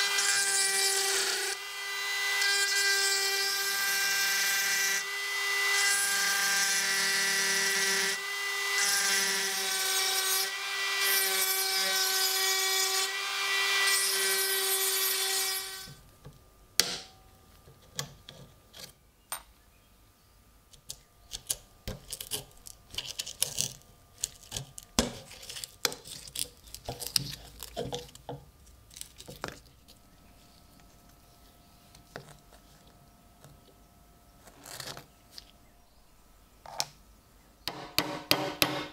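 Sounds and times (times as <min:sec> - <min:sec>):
power tool whining and grinding: 0:00.0 - 0:16.0
handling clicks and scrapes: 0:20.7 - 0:31.2.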